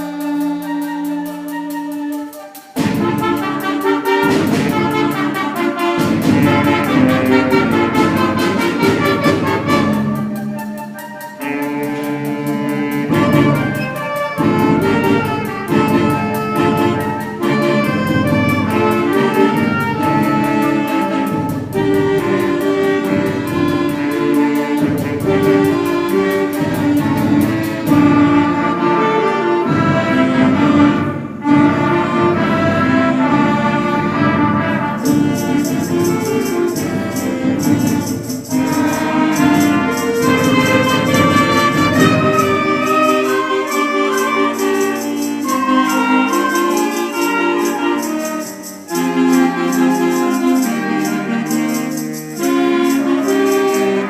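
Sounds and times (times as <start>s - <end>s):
rattling percussion beat: 0.0s - 54.0s
wind band playing: 0.0s - 54.0s.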